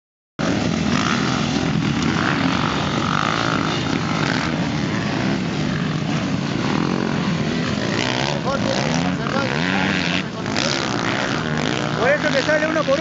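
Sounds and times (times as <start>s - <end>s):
motorcycle engines revving: 0.4s - 13.0s.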